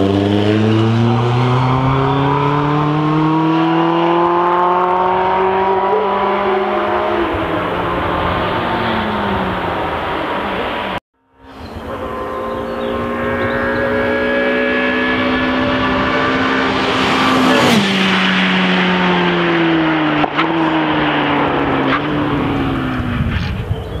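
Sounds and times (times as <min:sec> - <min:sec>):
racing car engine passing: 0:00.0 - 0:23.6.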